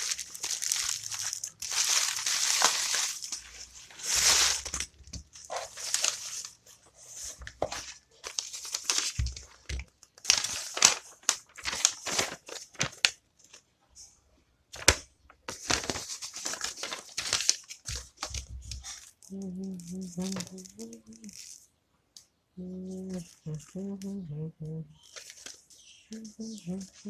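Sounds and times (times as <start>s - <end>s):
packaging tearing and crinkling: 0.0s - 6.6s, 7.7s - 13.1s, 14.8s - 19.2s.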